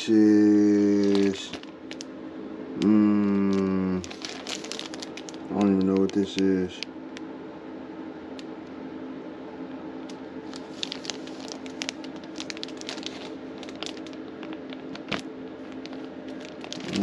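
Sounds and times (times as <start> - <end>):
steady low hum: 0.0 - 17.0
plastic wrap and paper crinkling: 0.8 - 2.1, 3.2 - 6.8, 10.4 - 17.0.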